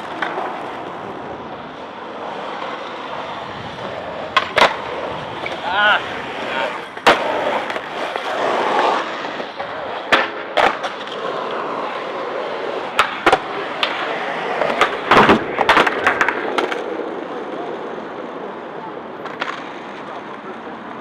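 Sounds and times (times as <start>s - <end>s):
skateboard rolling rumble: 0.0s - 21.0s
skateboard clacks on landing: 4.2s - 5.7s, 9.6s - 11.2s, 12.9s - 16.9s, 19.2s - 19.9s.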